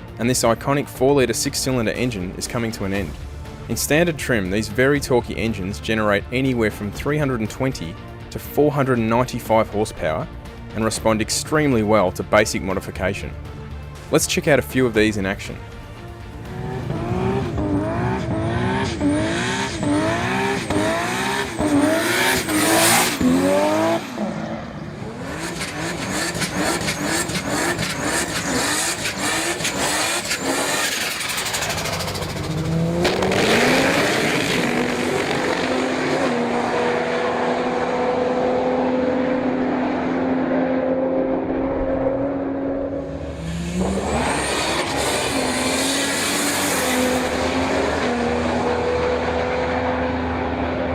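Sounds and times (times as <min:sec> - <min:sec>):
exhaust cracks: 0:16.4 - 0:36.0
engines revving hard: 0:16.4 - 0:50.9.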